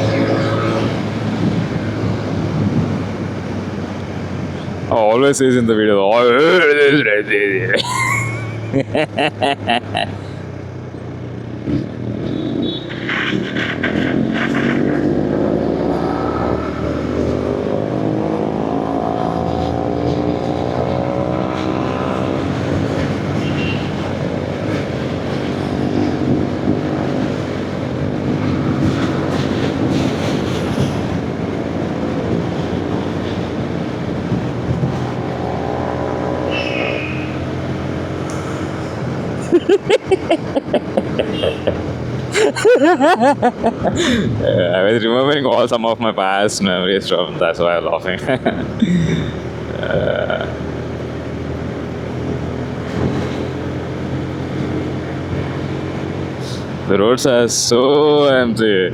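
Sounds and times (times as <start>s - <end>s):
motorcycle engine accelerating: 11.0s - 23.4s, 24.6s - 39.4s.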